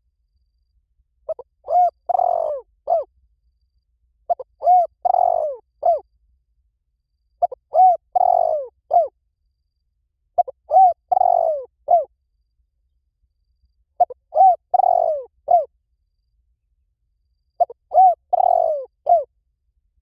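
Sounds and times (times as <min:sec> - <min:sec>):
dove cooing: 0:01.3 - 0:03.1, 0:04.3 - 0:06.0, 0:07.4 - 0:09.1, 0:10.4 - 0:12.1, 0:14.0 - 0:15.7, 0:17.6 - 0:19.3.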